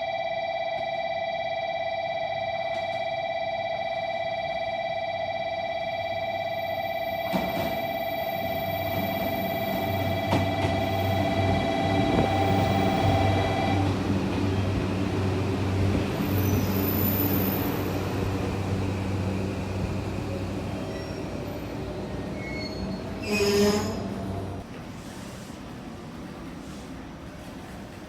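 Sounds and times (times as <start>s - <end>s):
electric train hum: 0.1s - 28.0s.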